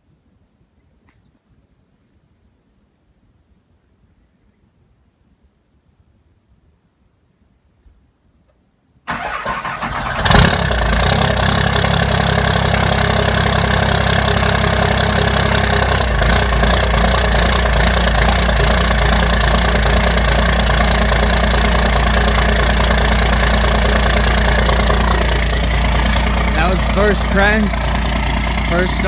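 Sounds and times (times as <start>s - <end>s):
diesel engine idling: 9.1s - 29.0s
engine starter cranking: 9.1s - 29.0s.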